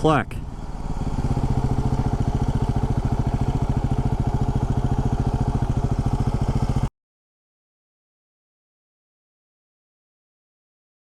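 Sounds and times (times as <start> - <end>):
motorcycle engine idling: 0.0 - 6.9.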